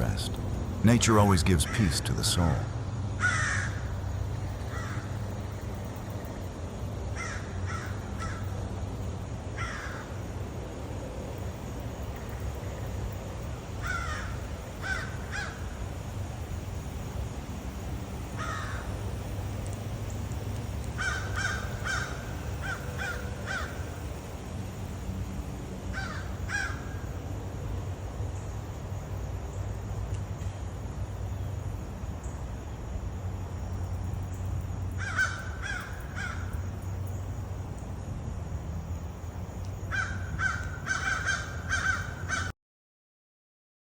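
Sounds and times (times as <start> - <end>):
steady low rumble: 0.0 - 35.0
birds making harsh calls: 1.5 - 3.9, 21.0 - 24.0, 35.0 - 36.6, 39.9 - 42.5.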